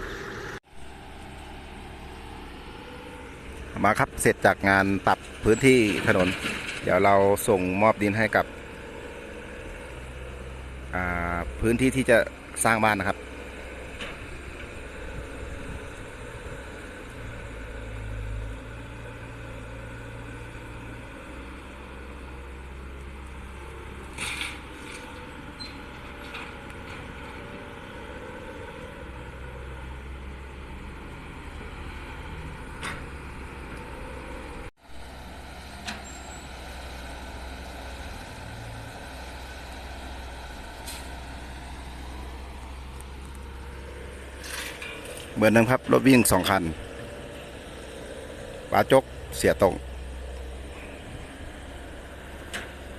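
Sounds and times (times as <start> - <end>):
heavy diesel engine running: 0.0 - 52.9.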